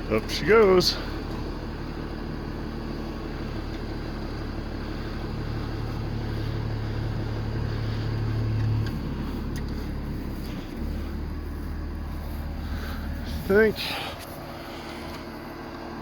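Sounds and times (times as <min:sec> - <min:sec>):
loader engine under hydraulic load: 0:00.0 - 0:16.0
low hum: 0:03.0 - 0:15.7.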